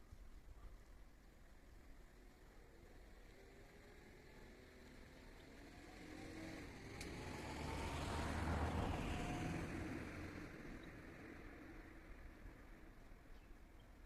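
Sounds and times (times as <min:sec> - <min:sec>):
motor vehicle passing by: 0:02.8 - 0:13.1.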